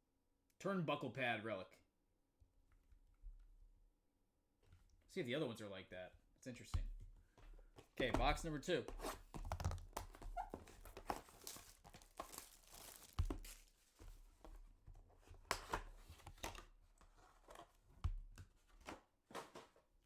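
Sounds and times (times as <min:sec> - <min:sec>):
packaging tearing and crinkling: 0:10.8 - 0:13.8.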